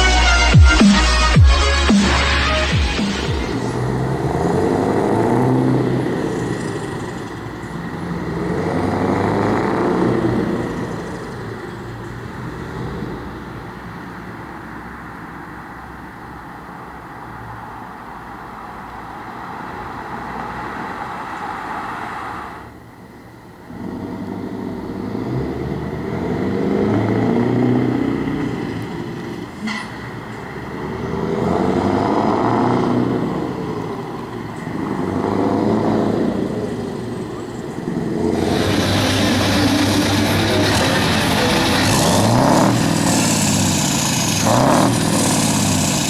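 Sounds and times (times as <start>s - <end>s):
truck engine running: 0.0s - 12.6s, 24.0s - 46.0s.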